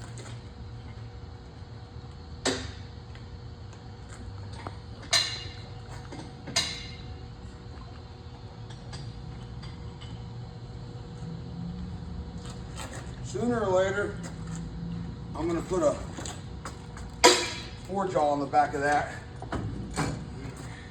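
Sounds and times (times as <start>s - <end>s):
metallic clanks of steel bar: 17.2s - 17.8s.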